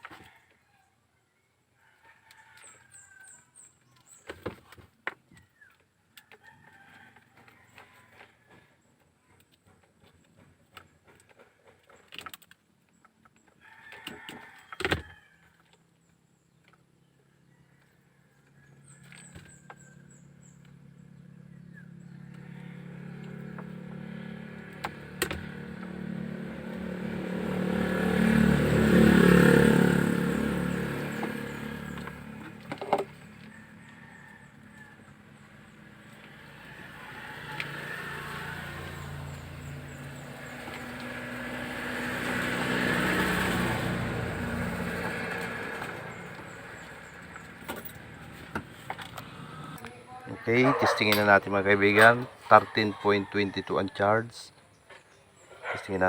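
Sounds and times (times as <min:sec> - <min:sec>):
vehicle approaching: 0:18.5 - 0:56.0
vehicle passing by: 0:18.7 - 0:56.0.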